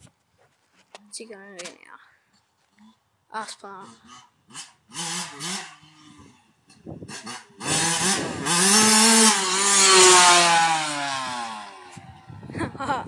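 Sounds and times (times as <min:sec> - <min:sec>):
motorbike engine revving: 0:03.8 - 0:12.3.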